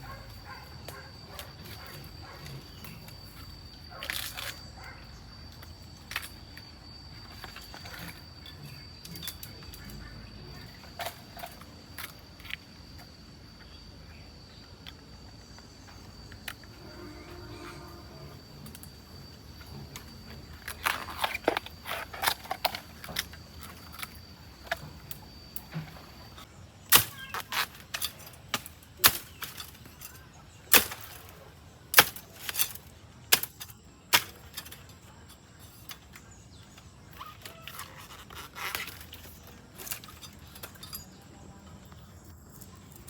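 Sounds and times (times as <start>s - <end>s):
thin high whine: 15.8s - 21.7s.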